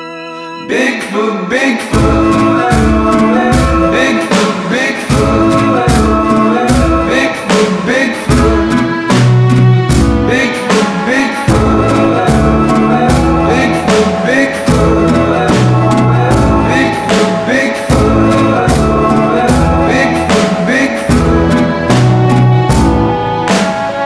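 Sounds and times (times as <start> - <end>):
song with drum beat: 1.9 - 24.0.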